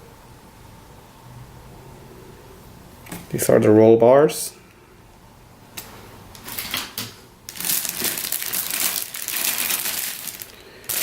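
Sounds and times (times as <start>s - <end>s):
plastic packaging crinkling: 7.5s - 11.0s.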